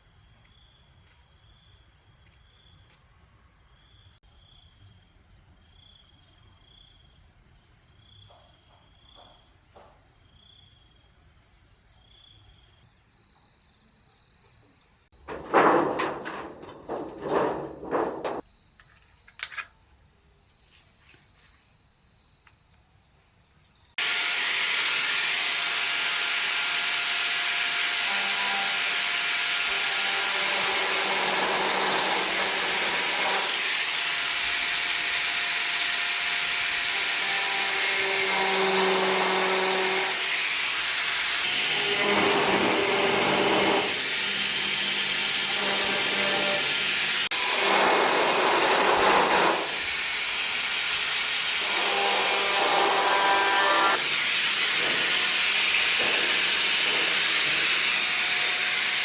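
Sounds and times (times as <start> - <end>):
rough scraping noises: 15.2 - 18.4.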